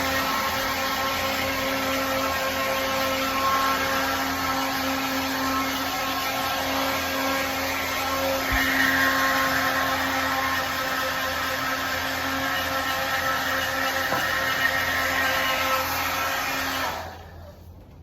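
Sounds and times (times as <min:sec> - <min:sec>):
motor hum and whir: 0:00.0 - 0:12.1.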